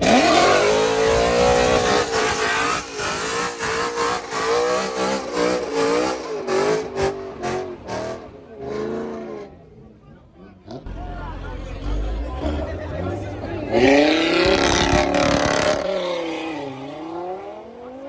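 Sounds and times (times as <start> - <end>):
car engine revving: 0.0 - 9.4, 10.7 - 17.5.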